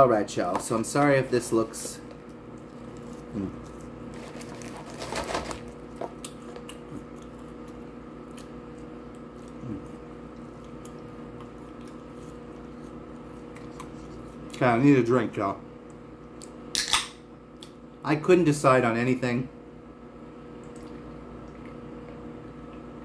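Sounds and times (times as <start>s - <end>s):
steady low hum: 0.0s - 23.0s
chewing french fries: 2.2s - 14.7s.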